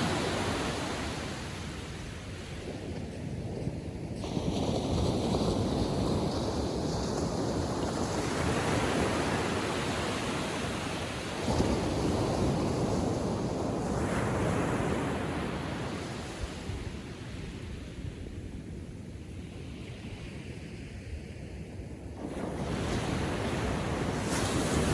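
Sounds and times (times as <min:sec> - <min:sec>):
small waves breaking on sand: 0:22.2 - 0:24.9.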